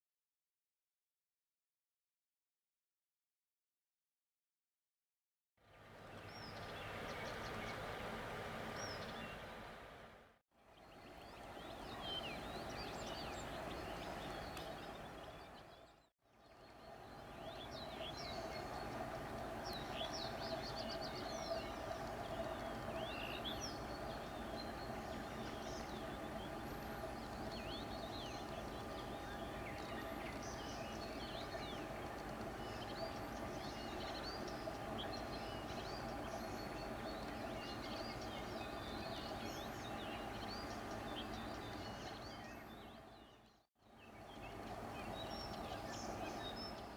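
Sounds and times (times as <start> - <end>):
steady mechanical hum: 5.7 - 15.8, 16.5 - 46.9
small birds chirping: 10.8 - 16.0, 16.6 - 46.9.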